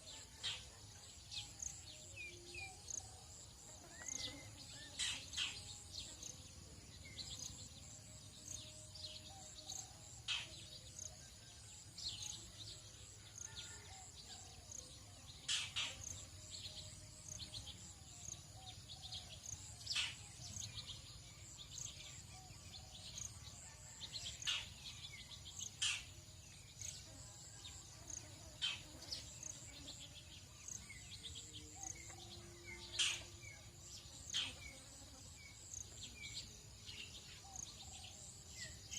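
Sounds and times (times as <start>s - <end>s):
high insect buzz: 1.6s - 9.1s, 25.6s - 37.8s.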